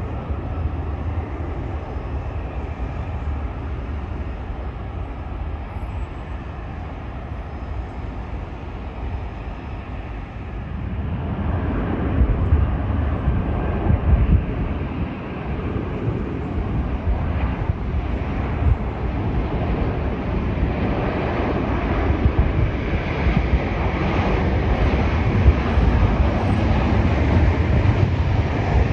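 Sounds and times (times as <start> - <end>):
jet airliner engine rumble: 0.0 - 28.9.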